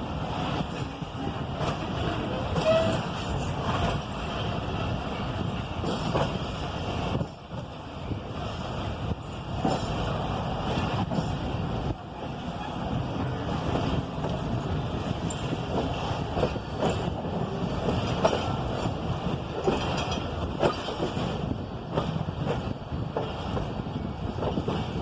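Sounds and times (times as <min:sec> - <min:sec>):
train clanks and knocks: 0:00.0 - 0:25.0
train wheels rumbling on rails: 0:00.0 - 0:25.0.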